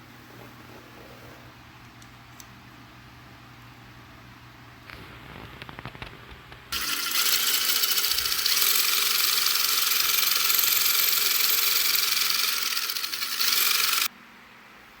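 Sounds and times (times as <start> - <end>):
power drill boring through metal: 6.8 - 14.1.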